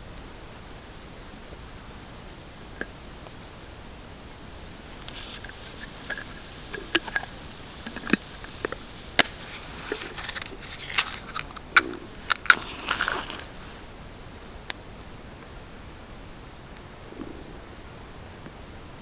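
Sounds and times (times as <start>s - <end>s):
light rustling: 4.5s - 14.0s
sharp clicks and snaps: 4.9s - 13.6s.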